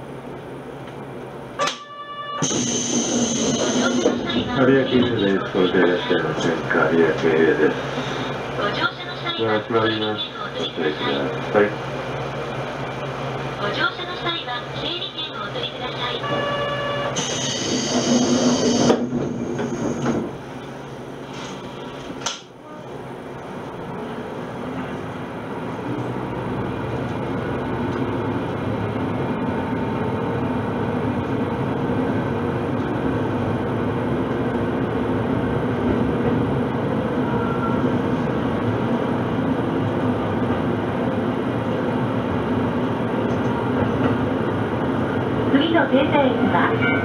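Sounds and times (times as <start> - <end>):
diesel railcar engine: 0.0 - 47.0
wheels on rail: 16.1 - 22.9.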